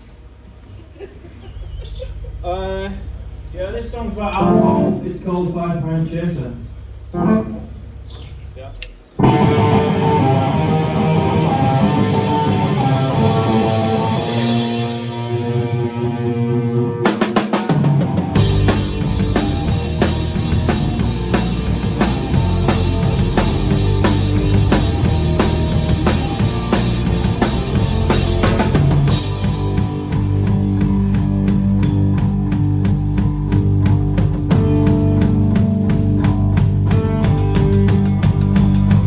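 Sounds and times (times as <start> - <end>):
rock band playing: 4.4 - 5.1, 9.2 - 39.0
held guitar chord: 4.4 - 5.4
run of drum hits: 17.4 - 39.0.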